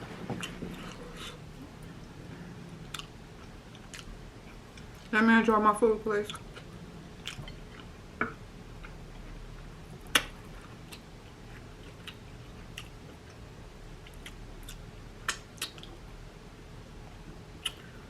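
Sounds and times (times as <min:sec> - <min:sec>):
person chewing food: 0:00.2 - 0:02.2, 0:02.8 - 0:05.1, 0:06.3 - 0:09.4, 0:10.0 - 0:16.0.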